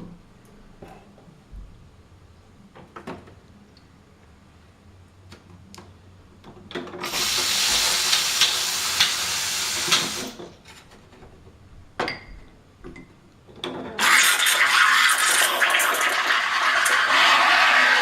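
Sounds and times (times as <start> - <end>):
espresso machine steam wand hissing: 7.0 - 10.4.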